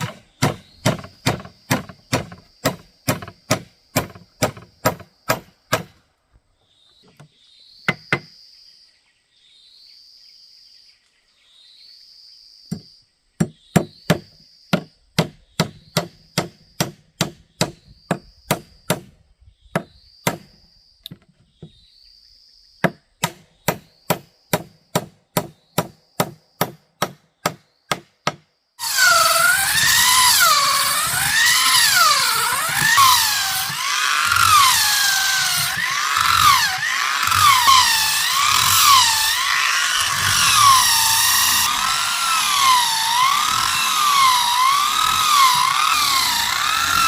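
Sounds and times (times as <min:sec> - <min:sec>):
strikes on wood: 0:00.0 - 0:06.0
power tool cutting: 0:28.8 - 0:47.0.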